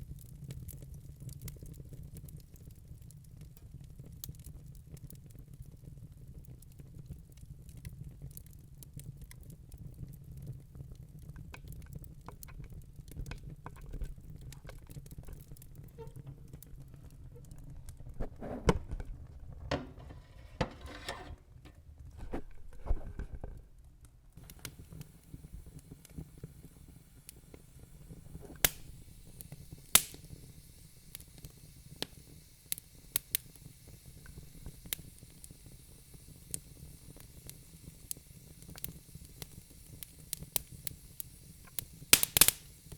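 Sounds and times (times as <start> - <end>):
logs crackling in fireplace: 0.0 - 42.9.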